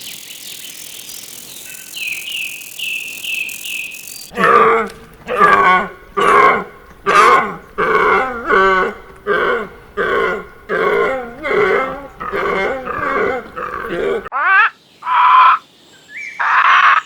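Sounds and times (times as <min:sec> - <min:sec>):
animal calling: 0:04.0 - 0:15.6.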